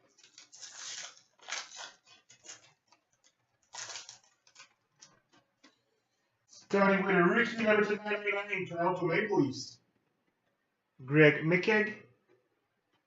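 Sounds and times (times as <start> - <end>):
card pack crinkling and rustling: 0.0 - 5.4.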